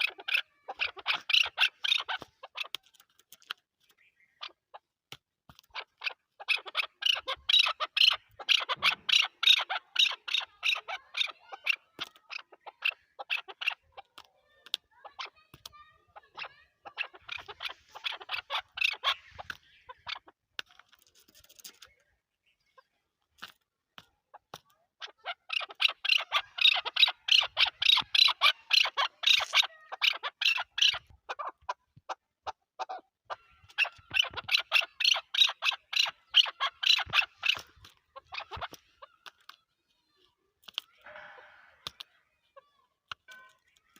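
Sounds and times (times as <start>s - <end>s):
partridge clucking calls: 0.0s - 43.9s.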